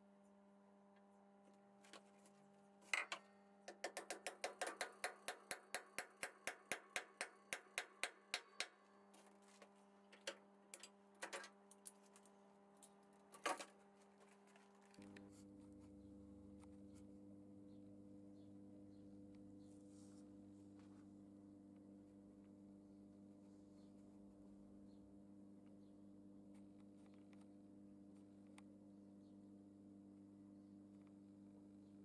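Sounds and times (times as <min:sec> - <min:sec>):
small hammer tapping: 0:02.9 - 0:09.0.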